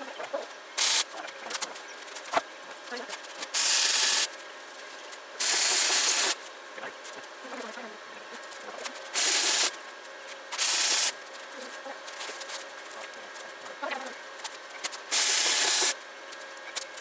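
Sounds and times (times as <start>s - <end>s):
quiet welder crackle: 0.7s - 17.0s
welder arcing: 0.8s - 1.1s, 3.3s - 4.4s, 5.4s - 6.5s, 9.0s - 9.8s, 10.5s - 11.2s, 14.8s - 16.0s.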